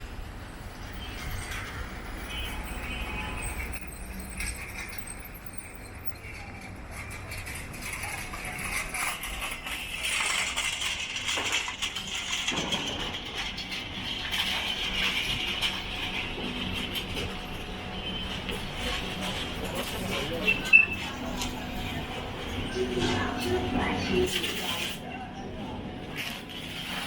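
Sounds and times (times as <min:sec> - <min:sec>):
scattered clicks and clinks: 0:00.8 - 0:27.0.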